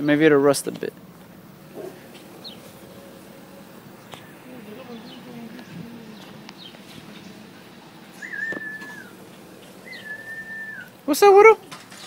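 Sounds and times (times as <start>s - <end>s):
long whistled notes: 8.2s - 9.2s, 9.8s - 10.9s.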